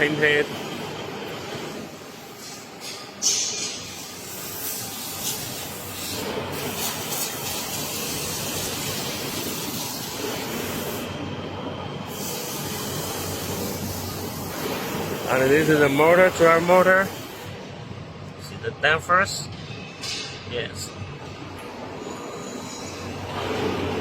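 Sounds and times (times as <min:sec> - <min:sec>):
steady hissing: 0:02.4 - 0:11.2, 0:12.1 - 0:17.4.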